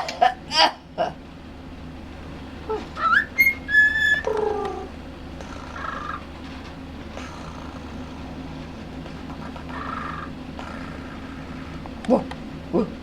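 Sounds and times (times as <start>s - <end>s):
soft raspy bird purrs: 2.6s - 13.0s
cockatiel whistling: 3.0s - 4.9s.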